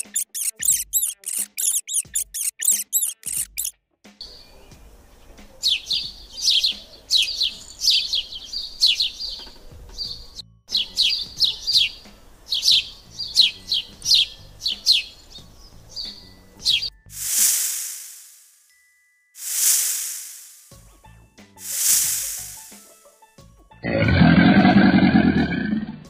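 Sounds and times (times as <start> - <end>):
small songbird chirping: 0.0 - 3.7, 5.6 - 17.0.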